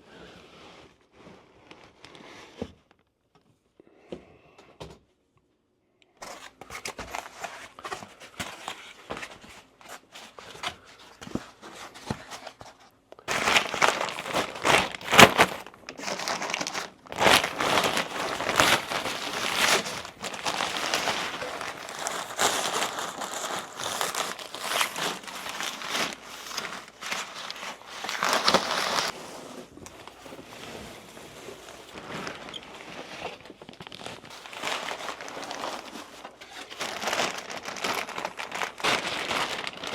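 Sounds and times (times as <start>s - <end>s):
packaging crinkling: 6.2s - 39.9s.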